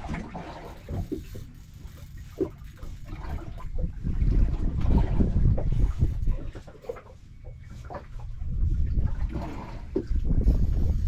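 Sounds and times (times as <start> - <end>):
wind buffeting microphone: 2.4 - 6.8, 7.5 - 11.0.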